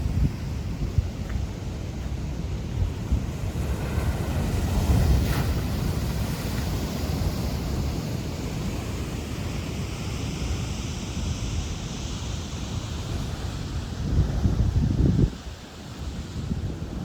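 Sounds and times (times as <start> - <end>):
wind buffeting microphone: 0.0 - 8.9, 12.9 - 17.0
ocean surf breaking: 2.9 - 10.6.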